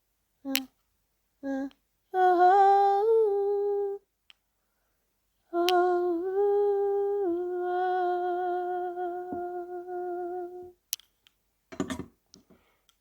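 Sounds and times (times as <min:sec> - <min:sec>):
woman humming a long note: 0:01.4 - 0:04.0, 0:05.5 - 0:10.8.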